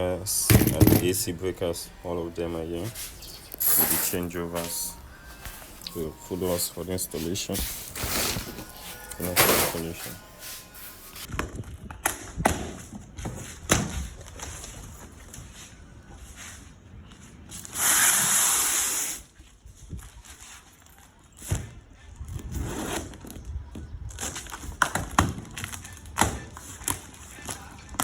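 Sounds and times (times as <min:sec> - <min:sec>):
handling knocks and clicks: 0:00.5 - 0:01.3.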